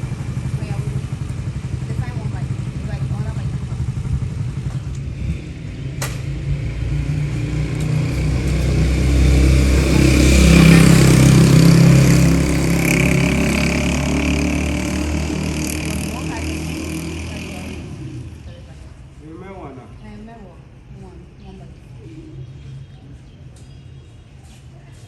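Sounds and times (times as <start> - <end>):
motorcycle engine running: 0.0 - 19.2
sharp click: 6.0 - 6.4.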